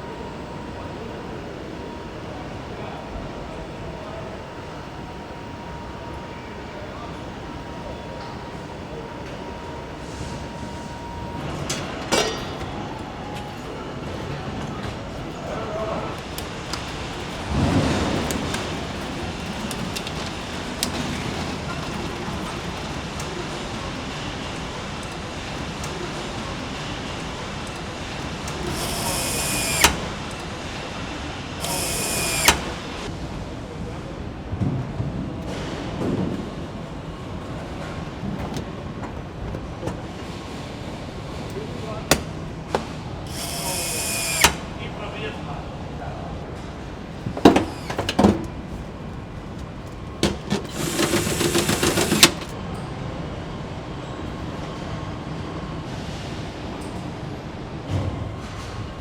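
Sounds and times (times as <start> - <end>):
steady factory hum: 0.0 - 59.0
rapid mechanical rattle: 14.6 - 33.1, 43.3 - 44.7, 50.2 - 52.6
power tool whirring: 16.1 - 33.1, 43.3 - 44.7, 50.4 - 52.6.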